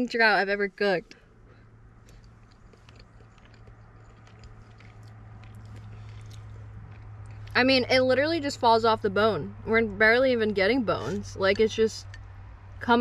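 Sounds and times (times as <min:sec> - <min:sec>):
person chewing: 0:02.0 - 0:07.5
wet mouth clicks: 0:02.0 - 0:07.5.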